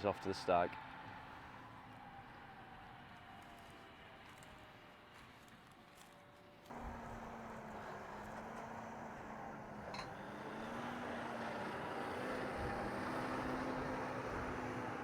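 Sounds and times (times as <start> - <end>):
tractor engine running: 6.7 - 15.0.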